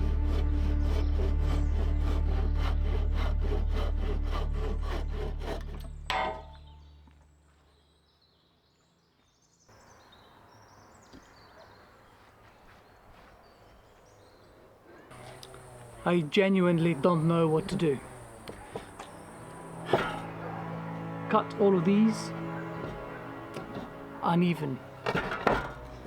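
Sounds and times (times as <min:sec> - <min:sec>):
handsaw cutting wood: 0:00.0 - 0:06.6, 0:15.1 - 0:26.0.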